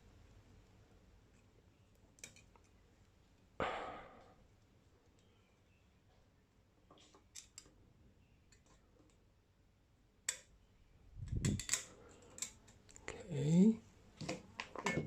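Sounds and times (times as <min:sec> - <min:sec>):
metal parts clicking and knocking: 0:11.3 - 0:12.8.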